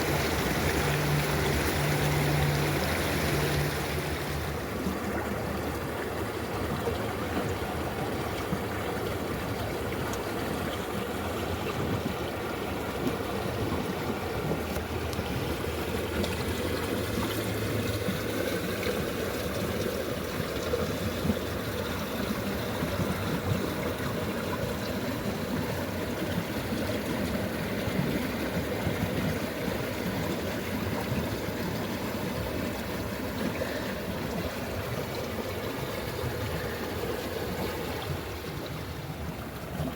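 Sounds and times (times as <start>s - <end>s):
stream flowing and trickling: 0.0s - 39.9s.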